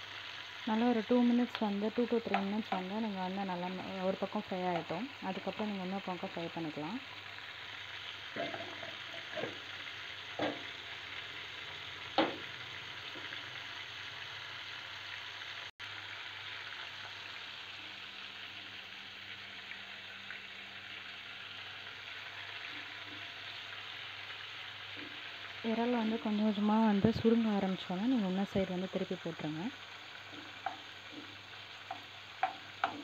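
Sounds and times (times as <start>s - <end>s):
prawns sizzling in hot oil: 0.0s - 33.0s
metal spoon knocking on pan: 10.4s - 10.7s, 12.2s - 12.5s, 30.3s - 31.3s, 31.9s - 33.0s.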